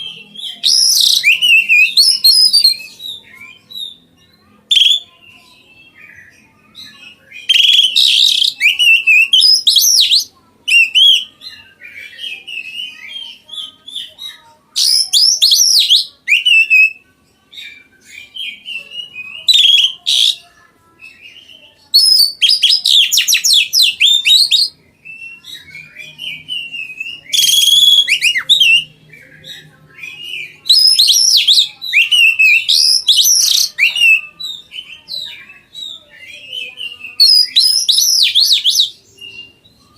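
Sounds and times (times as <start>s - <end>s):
bird singing whistled phrases: 0.4s - 4.0s, 4.7s - 5.1s, 7.0s - 11.3s, 14.8s - 17.0s, 18.1s - 20.4s, 21.2s - 28.9s, 30.0s - 39.5s.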